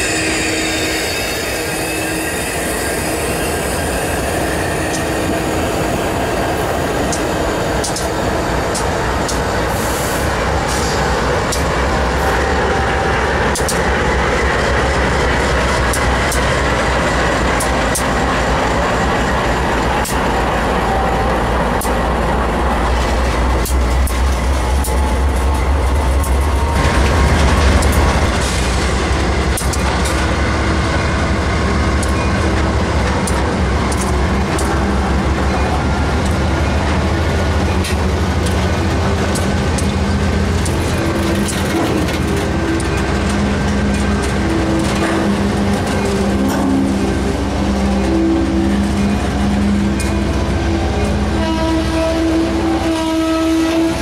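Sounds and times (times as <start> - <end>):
diesel locomotive engines rumbling: 0.0 - 54.0
train wheel noise: 0.0 - 54.0
clicks over rail joints: 36.2 - 46.9.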